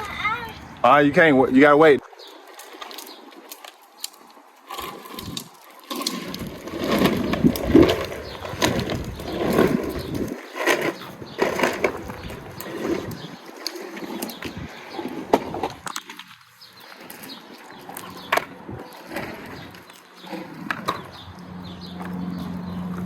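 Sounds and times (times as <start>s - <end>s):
wind buffeting microphone: 6.3s - 15.9s, 18.0s - 19.8s.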